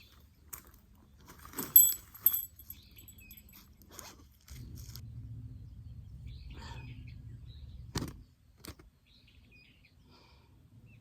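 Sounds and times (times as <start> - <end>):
small metal objects jingling: 1.4 - 3.7.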